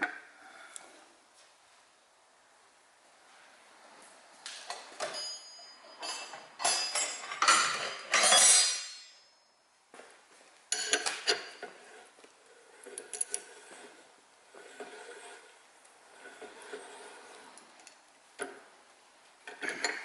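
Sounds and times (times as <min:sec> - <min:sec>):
metal parts clinking and scraping: 0:05.0 - 0:09.2, 0:12.8 - 0:13.8.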